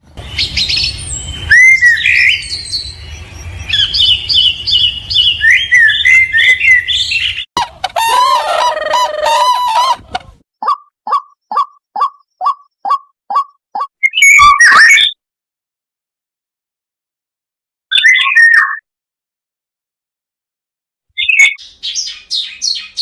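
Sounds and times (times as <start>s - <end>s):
songbirds singing: 0.0s - 7.5s, 21.2s - 23.0s.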